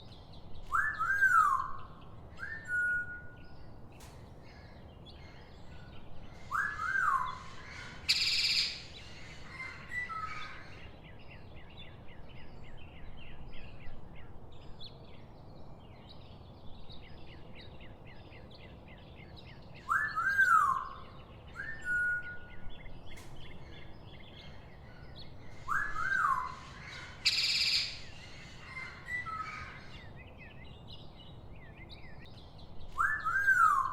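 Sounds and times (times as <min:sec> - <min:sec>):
birds whistling: 0:00.6 - 0:03.7, 0:06.4 - 0:10.9, 0:19.4 - 0:33.9.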